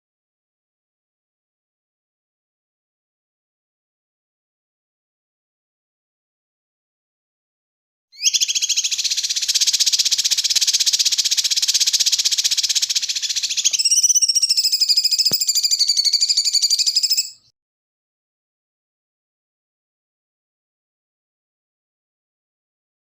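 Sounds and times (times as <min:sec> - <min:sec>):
songbird trilling: 0:08.2 - 0:17.5
brief click: 0:15.2 - 0:15.5.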